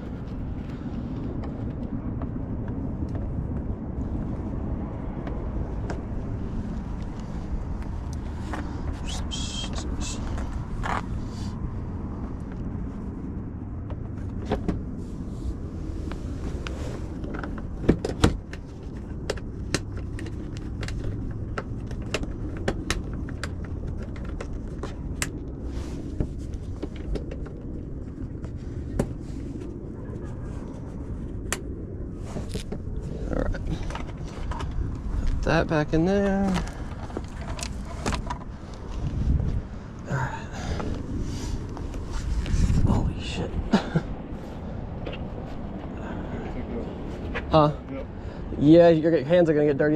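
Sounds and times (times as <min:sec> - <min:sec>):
tools and parts clanking: 0:36.5 - 0:38.5.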